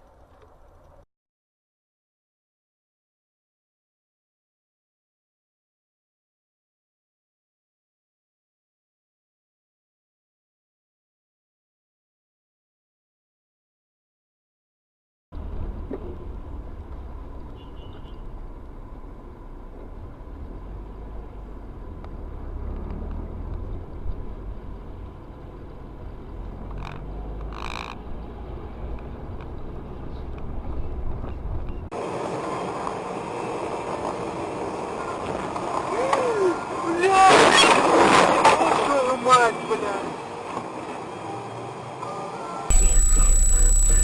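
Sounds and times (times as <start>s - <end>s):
vehicle driving rumble: 15.4s - 31.9s
high-pitched squeal: 42.7s - 44.0s.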